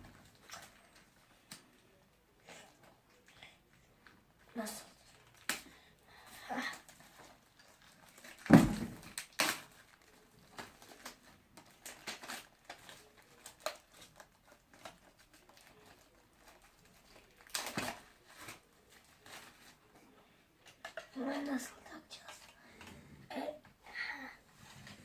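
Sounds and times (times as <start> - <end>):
packaging crinkling and rustling: 6.6 - 20.0.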